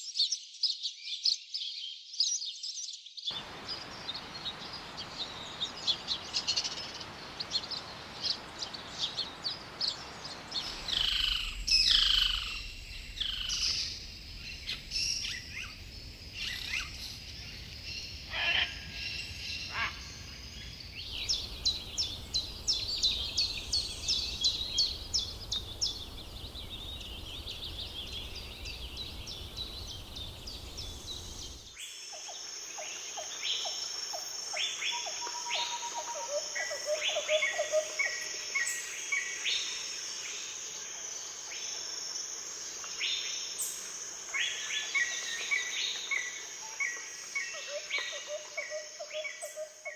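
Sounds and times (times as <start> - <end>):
birds calling and singing: 0.9 - 20.3, 21.0 - 32.4.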